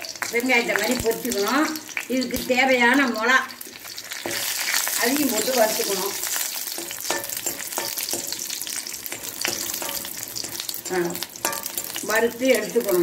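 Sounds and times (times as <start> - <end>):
chillies sizzling in hot oil: 0.0 - 13.0
metal spoon scraping pan: 4.1 - 13.0.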